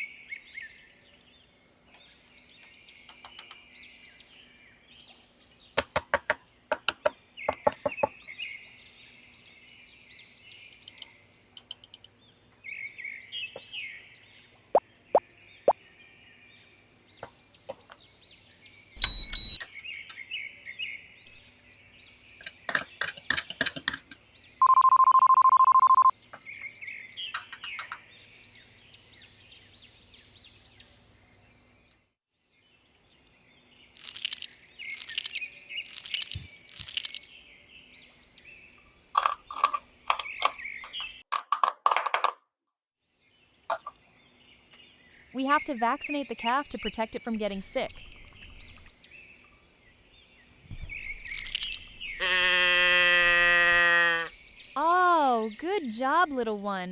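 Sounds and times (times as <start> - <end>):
birds chirping: 0.0 - 42.3, 43.1 - 56.9
short clicks: 1.9 - 3.6.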